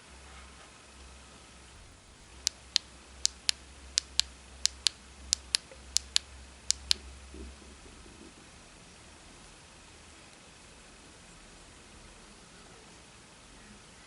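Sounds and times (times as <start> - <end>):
sharp double clicks: 2.4 - 7.0.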